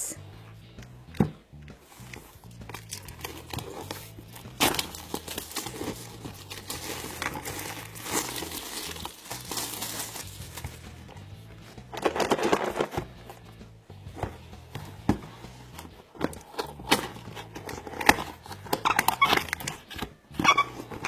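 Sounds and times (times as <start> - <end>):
quiet background music: 0.0 - 21.0
plastic packaging crinkling and tearing: 2.7 - 10.8.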